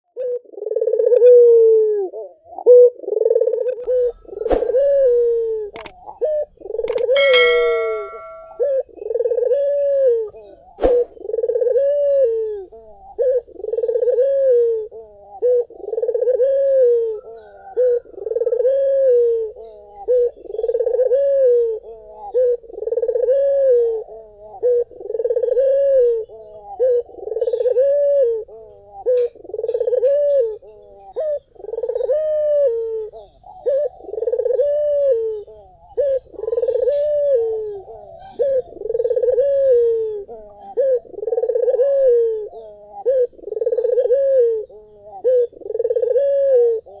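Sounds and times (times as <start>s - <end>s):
dove cooing: 0.1s - 47.0s
sharp clicks: 5.8s - 6.0s, 6.8s - 8.4s
brief ringing tone: 7.2s - 8.6s.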